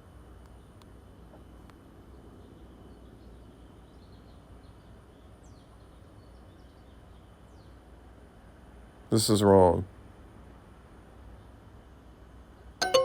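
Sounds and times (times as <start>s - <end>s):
low steady hum: 9.8s - 13.0s.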